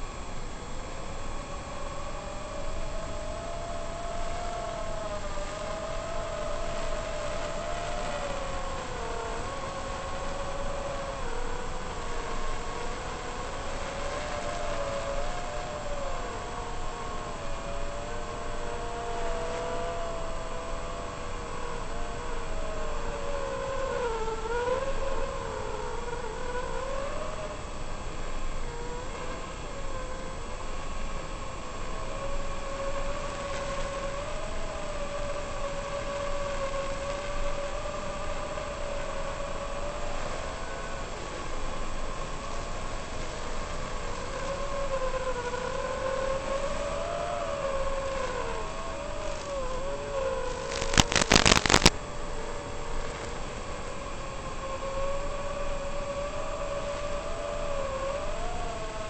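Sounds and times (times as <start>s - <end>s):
drone motors whining: 50.4s - 51.9s
sharp cracks: 50.5s - 52.0s
rush of air noise: 50.5s - 54.6s.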